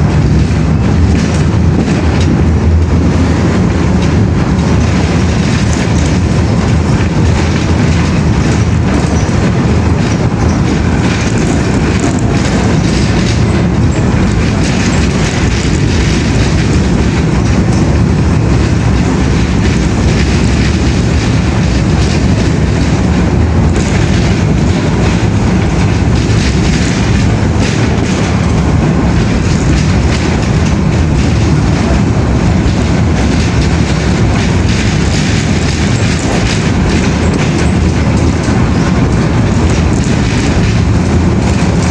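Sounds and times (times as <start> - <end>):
loud rumbling with fine clatter: 0.0 - 41.9.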